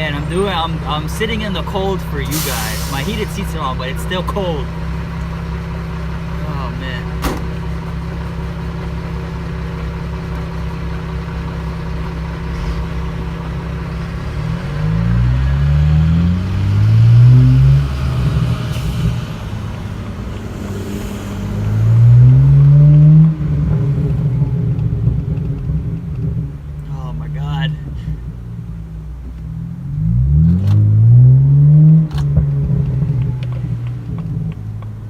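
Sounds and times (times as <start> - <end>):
car engine idling and revving: 0.0 - 35.0.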